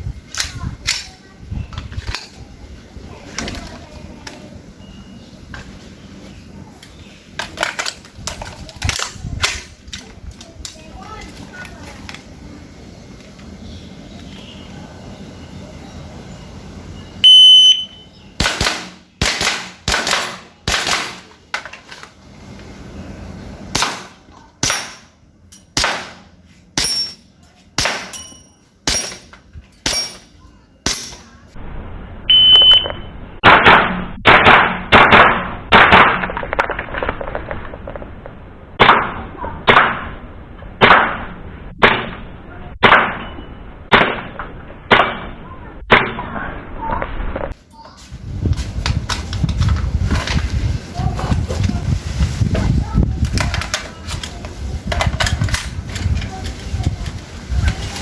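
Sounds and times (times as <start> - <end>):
short electronic beep: 4.8 - 5.3, 16.4 - 18.2, 32.3 - 33.2
airsoft gun shots: 18.4 - 21.3, 23.7 - 25.1, 25.8 - 27.0, 27.8 - 28.2, 33.4 - 36.4, 38.8 - 40.2, 40.8 - 43.3, 43.9 - 46.2.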